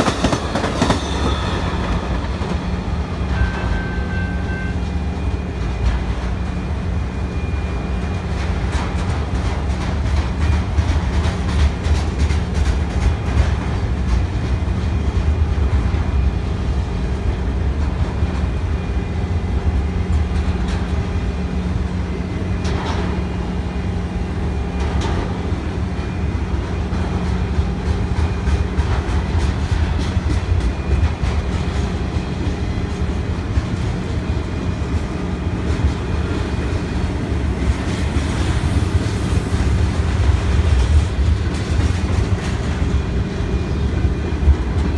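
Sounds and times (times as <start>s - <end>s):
freight train cars rolling past: 0.0s - 44.9s.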